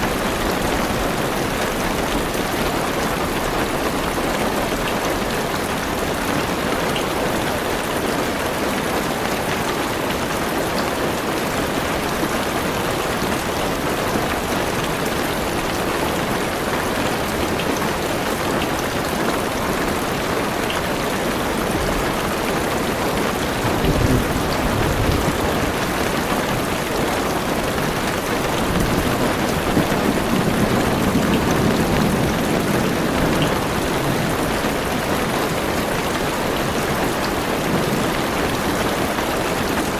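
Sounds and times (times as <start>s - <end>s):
heavy rain on car roof: 0.0s - 39.9s
low thunder rumbles: 23.2s - 36.1s.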